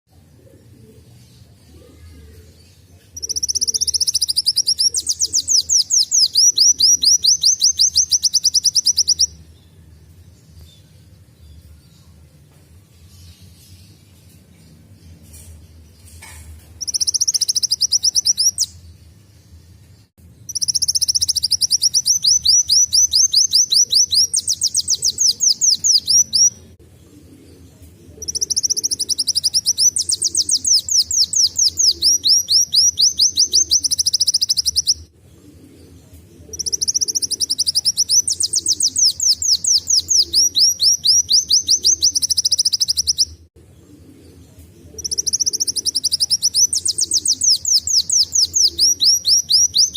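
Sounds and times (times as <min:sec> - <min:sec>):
sunbird singing trilled phrases: 0:03.2 - 0:09.7, 0:16.8 - 0:18.9, 0:20.5 - 0:26.8, 0:28.2 - 0:35.1, 0:36.4 - 0:43.4, 0:44.9 - 0:49.9.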